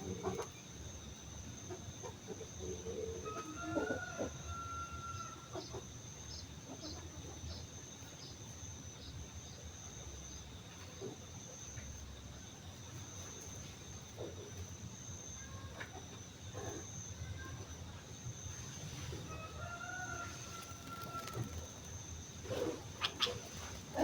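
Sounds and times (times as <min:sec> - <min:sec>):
high insect drone: 0:00.0 - 0:24.0
regular insect chirp: 0:00.0 - 0:24.0.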